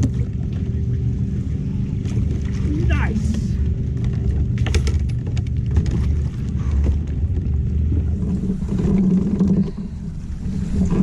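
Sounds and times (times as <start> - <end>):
handling clicks and knocks: 4.0 - 6.0.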